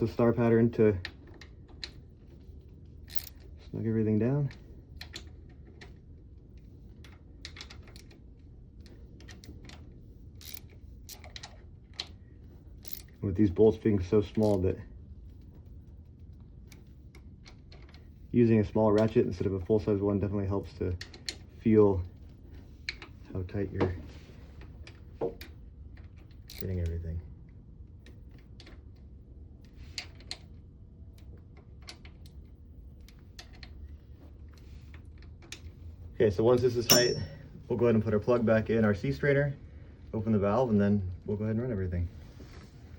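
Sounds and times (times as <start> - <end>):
steady low hum: 0.0 - 42.9
socket ratchet clicking: 3.1 - 3.4, 10.4 - 11.4, 12.8 - 13.1.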